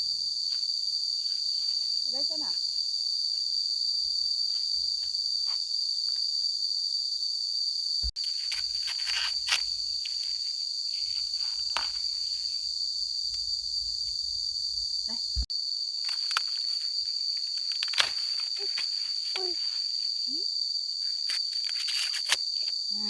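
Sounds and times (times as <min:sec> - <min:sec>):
insects chirring: 0:00.0 - 0:23.0
rustling: 0:08.1 - 0:15.4, 0:16.0 - 0:20.3, 0:21.0 - 0:22.6.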